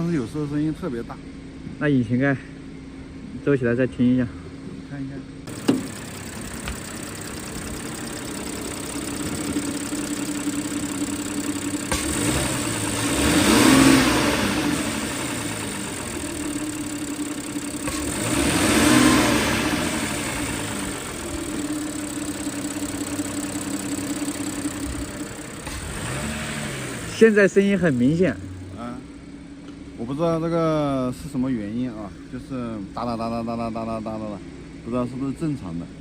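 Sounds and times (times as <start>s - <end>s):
car engine idling and revving: 4.4s - 36.0s
engine ticking: 5.5s - 29.0s.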